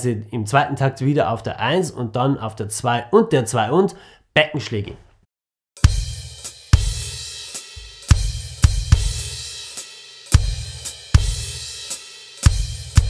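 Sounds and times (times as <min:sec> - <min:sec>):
bass drum: 0:05.8 - 0:09.6, 0:10.3 - 0:11.8, 0:12.4 - 0:13.0.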